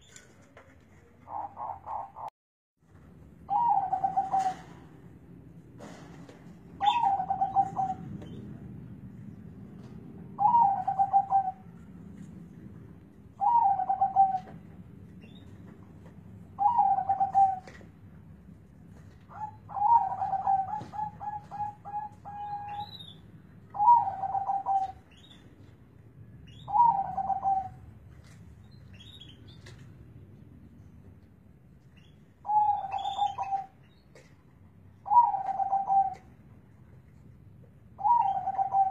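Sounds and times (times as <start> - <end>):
dove cooing: 1.0 - 2.3, 3.5 - 4.9, 6.8 - 8.1, 10.4 - 11.7, 13.4 - 14.6, 16.6 - 17.8, 19.3 - 23.0, 23.7 - 25.1, 26.5 - 27.8, 32.4 - 33.8, 35.0 - 36.3, 38.0 - 38.9.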